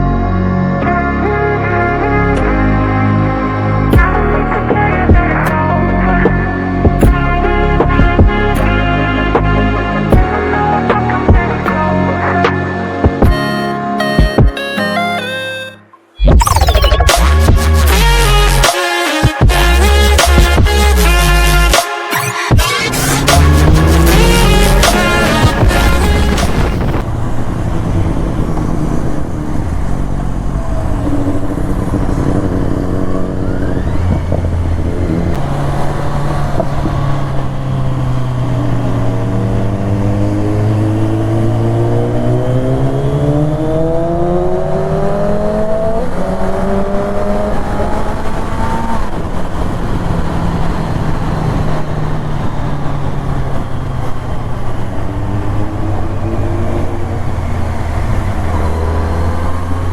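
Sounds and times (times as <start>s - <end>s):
motorcycle engine revving: 22.5s - 59.9s.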